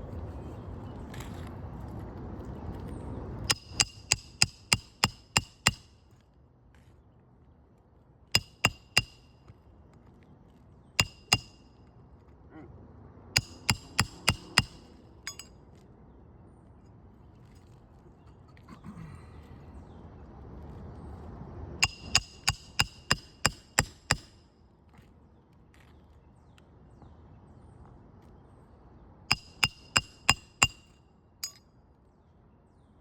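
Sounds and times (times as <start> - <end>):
hammer striking metal: 3.5 - 5.9, 8.4 - 9.3, 11.0 - 11.7, 13.4 - 15.6, 21.8 - 24.4, 29.3 - 31.6.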